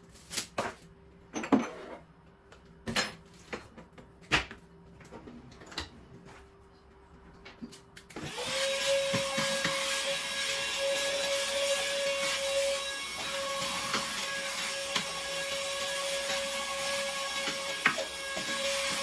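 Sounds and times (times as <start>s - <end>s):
vacuum cleaner whirring: 8.2s - 19.0s.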